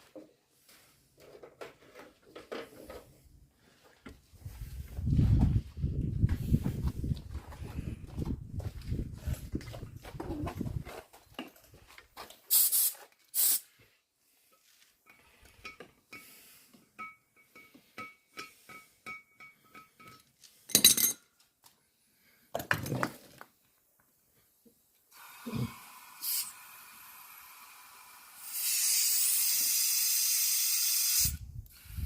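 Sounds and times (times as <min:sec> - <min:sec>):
short hissy bursts: 0:12.5 - 0:13.8, 0:25.1 - 0:32.0
metal clinks and taps: 0:15.1 - 0:16.3, 0:17.0 - 0:21.3.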